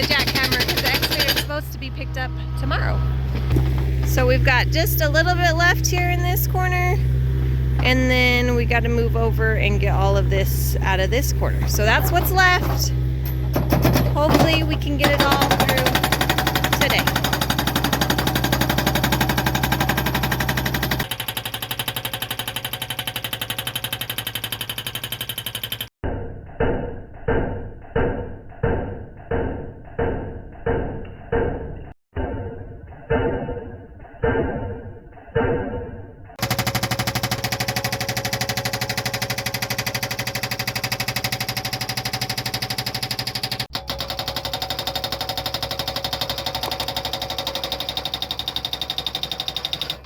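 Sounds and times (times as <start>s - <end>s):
hydraulic breaker hammering rock: 0.0s - 1.8s, 9.6s - 25.9s, 36.4s - 50.0s
excavator engine running: 0.0s - 25.9s, 36.3s - 50.0s.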